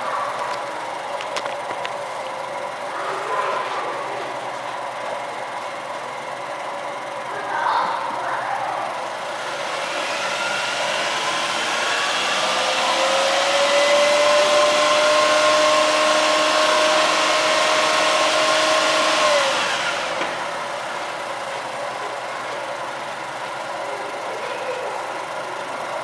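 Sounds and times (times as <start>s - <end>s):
car engine revving: 8.9s - 24.3s.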